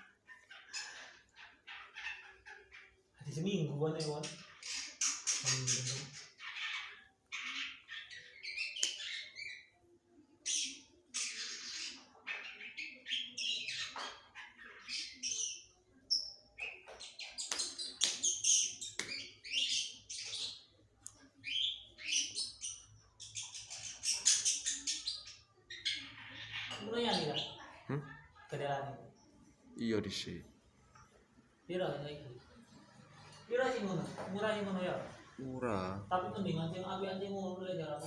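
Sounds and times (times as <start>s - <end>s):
bird chirping and trilling: 0.0s - 27.9s.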